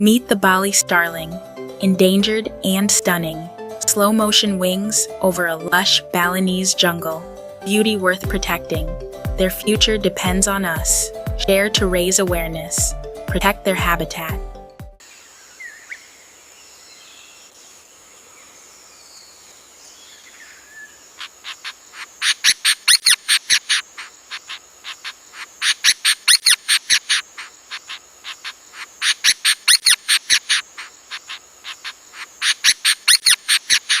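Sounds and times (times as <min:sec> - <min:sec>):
rapid high chirps: 0:21.5 - 0:34.0.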